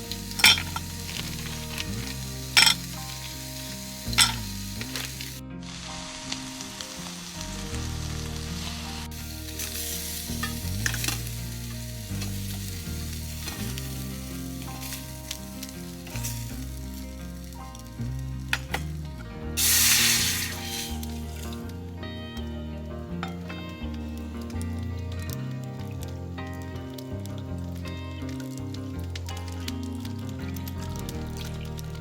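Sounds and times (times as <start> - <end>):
food sizzling in a pan: 0.0 - 17.7, 19.6 - 21.7.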